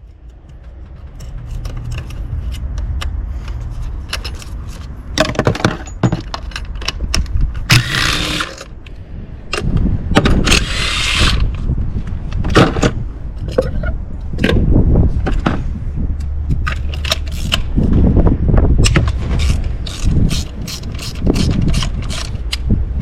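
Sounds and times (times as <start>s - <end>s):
tools and metal parts clattering: 0.0s - 8.7s, 18.8s - 22.6s
rasping bursts: 7.7s - 8.7s, 19.1s - 22.7s.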